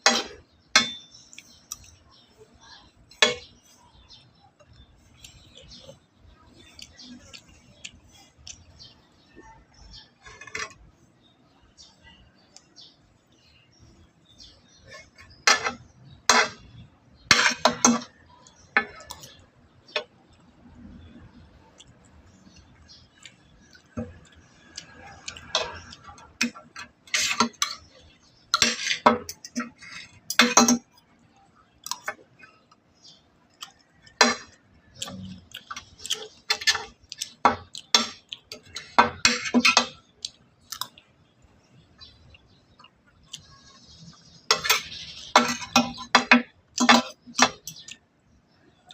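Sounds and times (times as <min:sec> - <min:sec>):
cutlery clinking against dishes: 0:00.0 - 0:01.9, 0:14.9 - 0:16.7, 0:17.3 - 0:20.1, 0:24.8 - 0:27.9, 0:28.6 - 0:30.9, 0:33.7 - 0:40.0, 0:44.5 - 0:47.9
chewing: 0:33.5 - 0:38.9.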